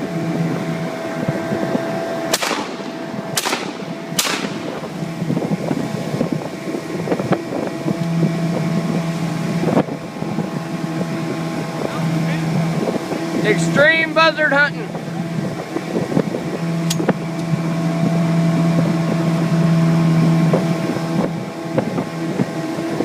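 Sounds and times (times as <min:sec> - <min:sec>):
outboard motor running: 0:00.0 - 0:23.0
shotgun blasts: 0:02.3 - 0:05.2.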